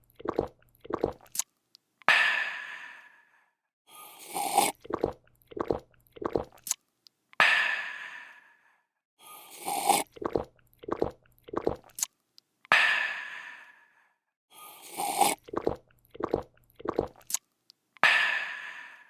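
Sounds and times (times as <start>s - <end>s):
person gulping: 0.0s - 1.4s, 4.3s - 6.7s, 9.6s - 12.0s, 15.0s - 17.4s
person slurping: 0.0s - 1.4s, 4.0s - 6.8s, 9.3s - 12.1s, 14.6s - 17.4s.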